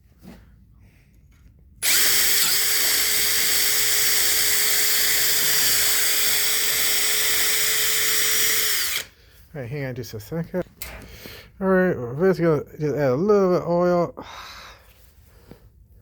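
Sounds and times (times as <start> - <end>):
electric drill running: 1.8 - 9.1.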